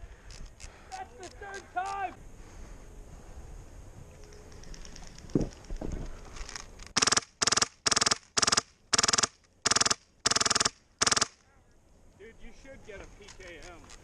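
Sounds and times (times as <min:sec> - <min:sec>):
airsoft gun firing full-auto bursts: 0:07.0 - 0:11.4.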